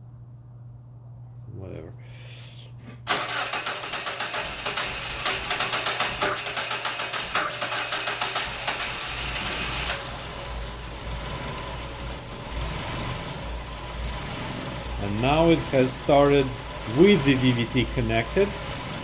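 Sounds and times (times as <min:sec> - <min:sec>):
starter cranking engine: 0:03.1 - 0:10.4
car engine idling: 0:03.1 - 0:19.0.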